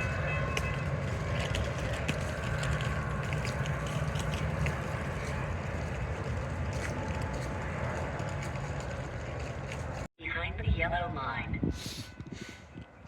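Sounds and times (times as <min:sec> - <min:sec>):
train rumbling past: 0:00.0 - 0:10.1.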